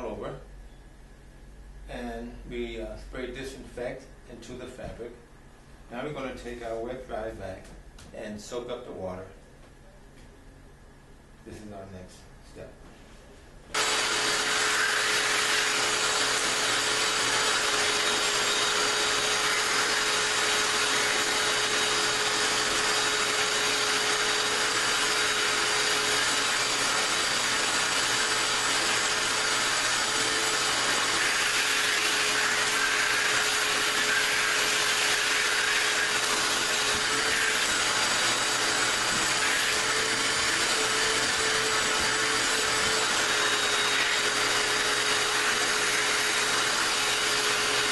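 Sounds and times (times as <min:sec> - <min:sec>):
wet vac whining: 0:13.7 - 0:47.9.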